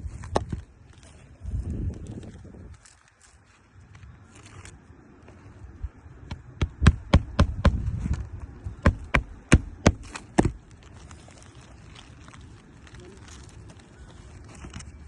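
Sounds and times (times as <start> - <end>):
hammer striking roofing nails: 6.3 - 7.8, 8.8 - 10.6.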